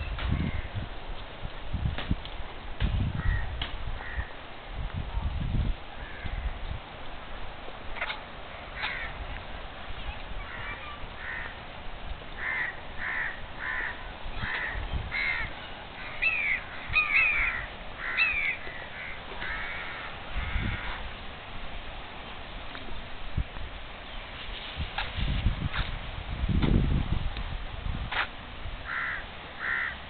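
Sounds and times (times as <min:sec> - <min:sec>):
birds calling: 0:03.2 - 0:04.4, 0:08.4 - 0:09.4, 0:10.0 - 0:11.7, 0:12.3 - 0:21.2, 0:28.8 - 0:30.0.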